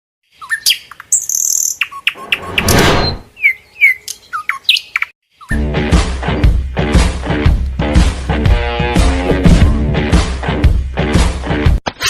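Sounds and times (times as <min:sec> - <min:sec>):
bird chirps: 0:00.3 - 0:05.6
music with a beat: 0:05.6 - 0:11.8.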